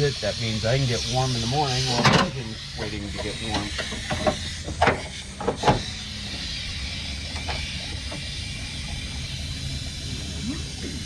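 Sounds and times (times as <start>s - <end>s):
faint hiss: 0.0s - 11.0s
steady low hum: 0.0s - 11.0s.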